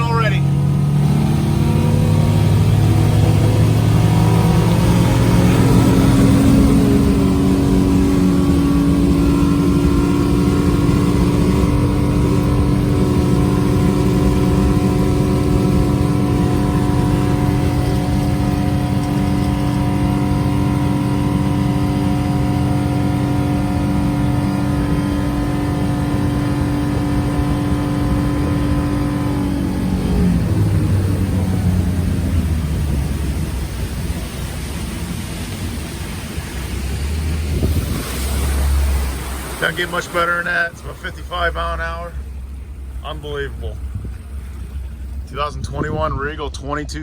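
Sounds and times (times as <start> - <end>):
boat engine running: 0.0 - 47.0
water noise: 0.0 - 47.0
wind noise: 37.3 - 38.6, 43.8 - 44.3, 45.3 - 46.6.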